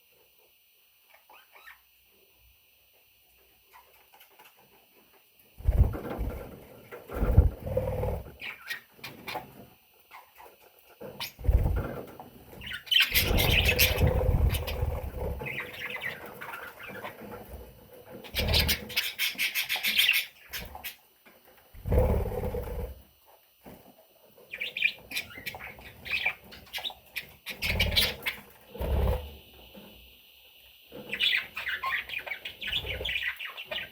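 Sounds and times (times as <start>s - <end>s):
budgerigar chicks chirping: 12.6s - 17.2s, 18.2s - 21.0s, 24.5s - 28.5s, 30.9s - 33.9s.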